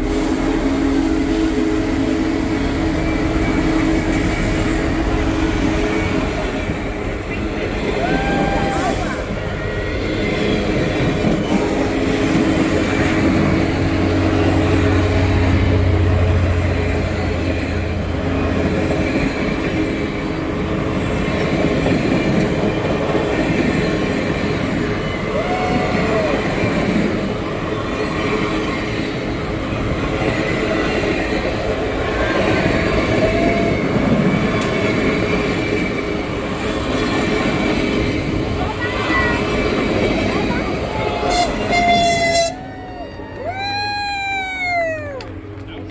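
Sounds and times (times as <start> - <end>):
train wheels rumbling on rail: 0.0 - 45.9
wheel squeals: 41.2 - 42.8.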